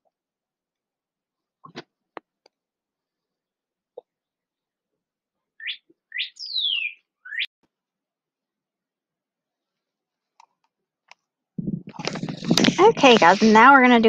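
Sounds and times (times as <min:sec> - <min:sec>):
bird chirping: 0:05.5 - 0:07.5.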